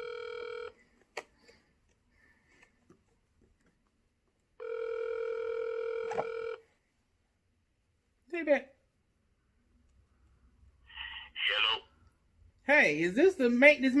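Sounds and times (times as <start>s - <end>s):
telephone ringback tone: 0.0s - 0.8s, 4.6s - 6.6s.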